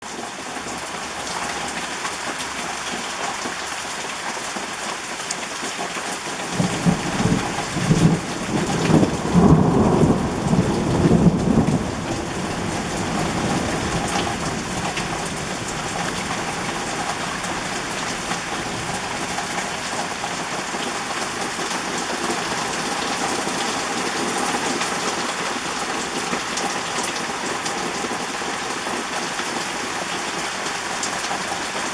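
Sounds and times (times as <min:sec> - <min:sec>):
torrential rain: 0:00.0 - 0:31.9
thunder rumbling: 0:06.5 - 0:21.6.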